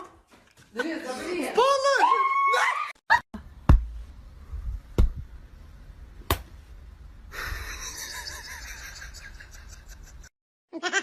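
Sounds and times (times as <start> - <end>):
sharp thumps with low rumble: 3.6 - 5.4.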